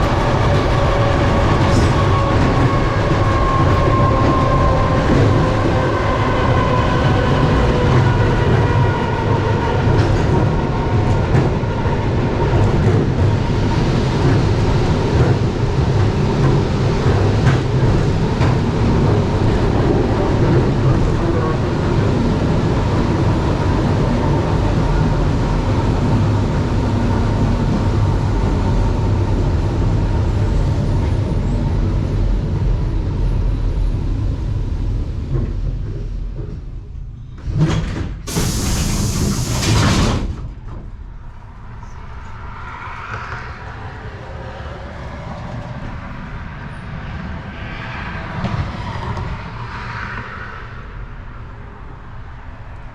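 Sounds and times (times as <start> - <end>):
train wheels rumbling on rails: 0.0 - 52.9
train doors hissing and sliding: 37.3 - 41.0.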